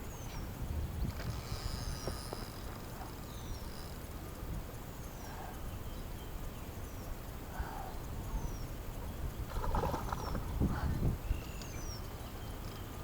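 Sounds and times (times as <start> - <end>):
lower bird chirps: 3.2 - 4.0, 5.0 - 10.6, 11.2 - 13.0
birds calling: 5.0 - 13.0.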